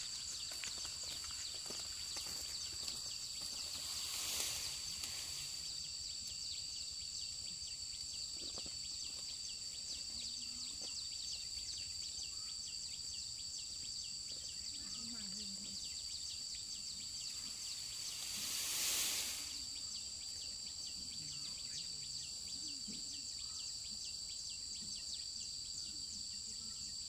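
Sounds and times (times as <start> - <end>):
rustling: 0.0 - 5.8, 17.3 - 19.8
field insects buzzing: 0.0 - 27.0.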